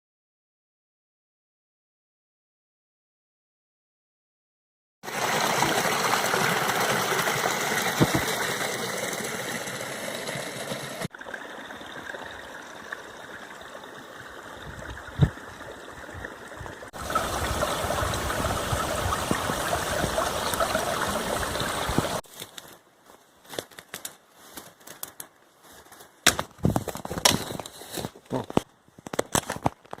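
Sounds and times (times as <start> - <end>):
stream rushing: 5.0 - 22.2.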